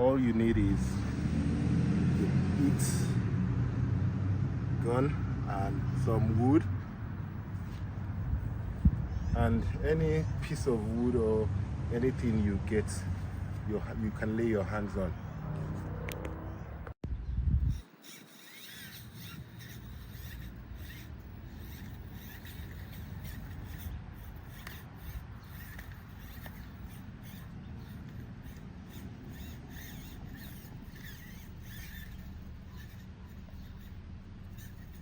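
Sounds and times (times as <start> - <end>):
toy car motor running: 0.0 - 16.3, 17.5 - 35.0
small clicks and scrapes: 7.5 - 7.9, 17.7 - 35.0.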